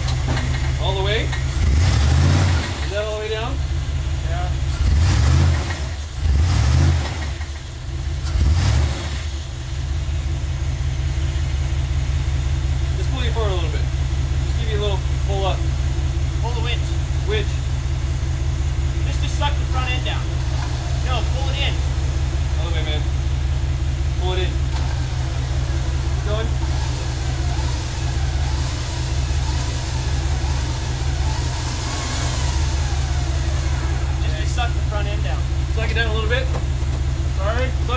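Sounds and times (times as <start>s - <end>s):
engine running and revving: 0.0s - 37.9s.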